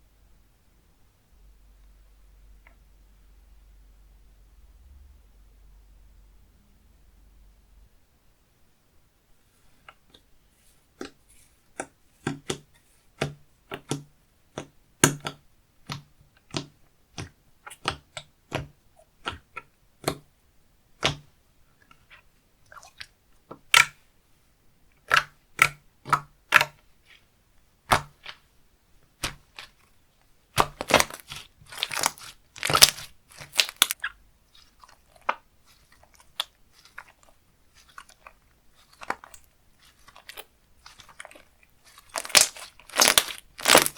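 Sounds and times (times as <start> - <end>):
slime clicking and popping: 23.6 - 24.0, 25.0 - 26.8, 30.6 - 34.2, 34.8 - 43.9
slime crackling: 30.5 - 43.9.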